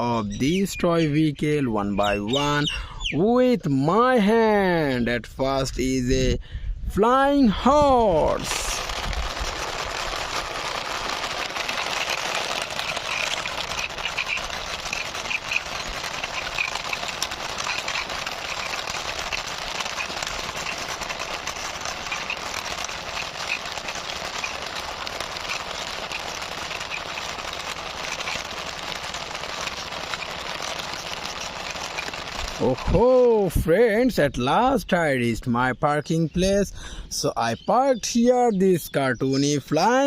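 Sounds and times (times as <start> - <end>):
toy wheels rolling and scraping: 7.6 - 33.6.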